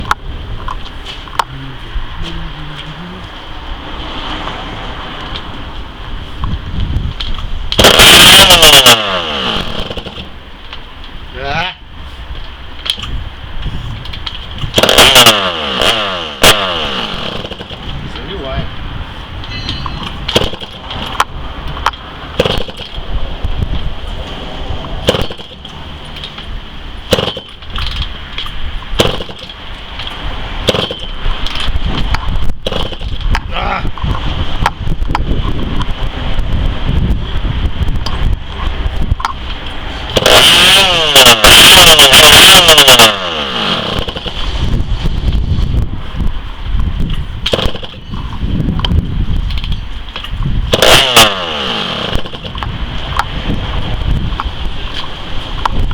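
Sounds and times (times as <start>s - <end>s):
steady mechanical noise: 0.0s - 11.3s, 11.9s - 55.9s
two-stroke engine loud cracking bangs: 7.2s - 10.4s, 14.2s - 18.4s, 19.9s - 24.4s, 25.0s - 33.5s, 39.0s - 45.4s, 47.0s - 55.9s.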